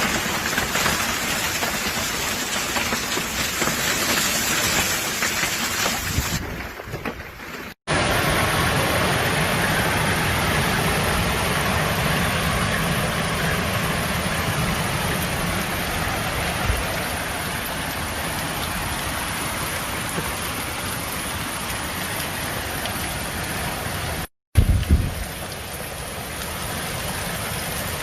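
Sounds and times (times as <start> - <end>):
hail and rain striking surfaces: 0.0 - 8.2.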